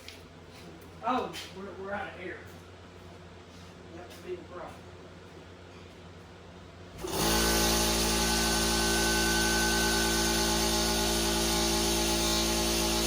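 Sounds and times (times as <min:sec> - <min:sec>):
air compressor running: 0:06.9 - 0:13.0.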